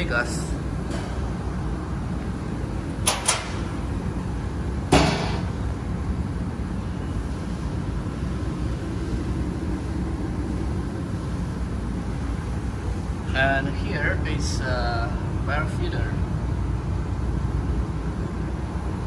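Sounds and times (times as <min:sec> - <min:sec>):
steady low hum: 0:00.0 - 0:19.0
metal door clunk: 0:03.0 - 0:03.7, 0:04.9 - 0:05.6.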